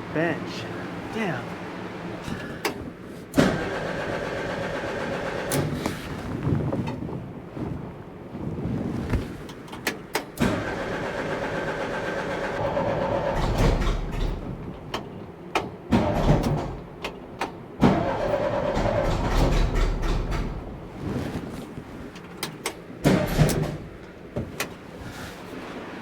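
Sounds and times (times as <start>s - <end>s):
engine starter cranking: 2.3s - 6.1s, 9.8s - 20.8s, 22.4s - 24.0s.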